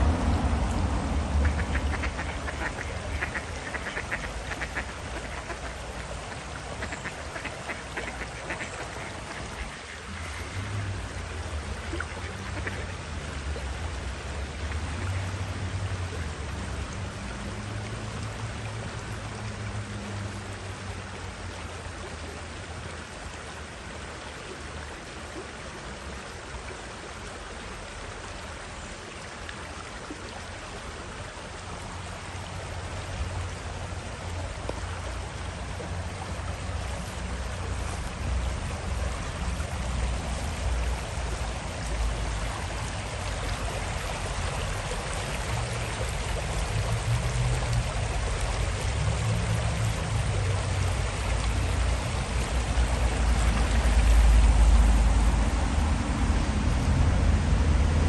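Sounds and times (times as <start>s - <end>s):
low rumble and hiss: 0.0s - 58.0s
ducks quacking: 1.4s - 10.8s, 12.0s - 12.9s.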